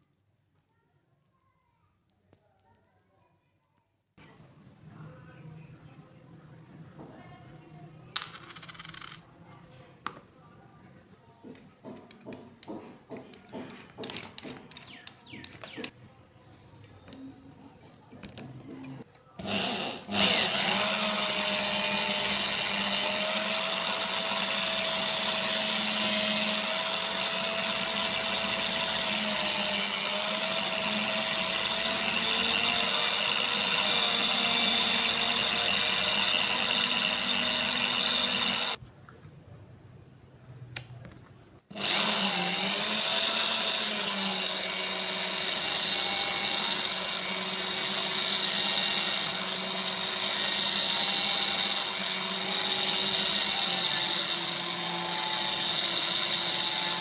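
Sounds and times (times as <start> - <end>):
power tool motor whining: 19.4 - 38.8, 41.7 - 57.0.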